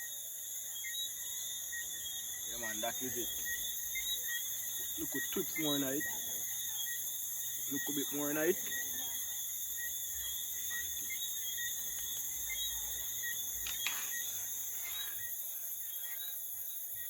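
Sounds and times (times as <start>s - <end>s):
crickets chirping: 0.0s - 17.0s
small click: 13.6s - 14.1s.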